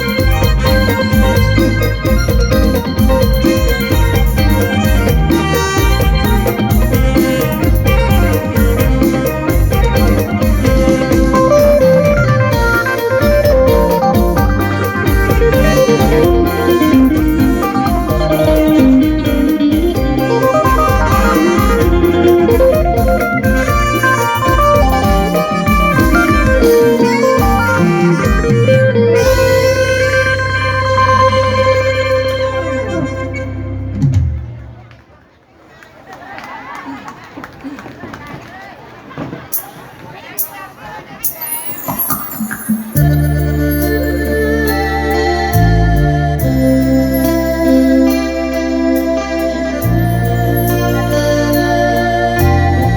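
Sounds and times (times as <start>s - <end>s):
steady drum beat: 0.0s - 29.7s
electric lute picking lead: 0.0s - 34.7s, 42.6s - 52.9s.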